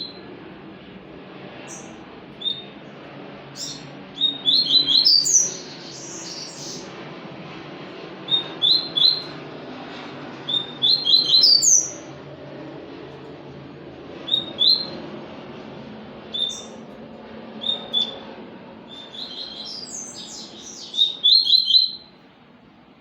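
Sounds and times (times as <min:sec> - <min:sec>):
seedeater bird chirping: 0:01.7 - 0:02.7, 0:03.6 - 0:06.9, 0:08.3 - 0:09.4, 0:10.5 - 0:12.0, 0:14.3 - 0:15.0, 0:16.3 - 0:16.8, 0:17.6 - 0:18.2, 0:18.9 - 0:22.2.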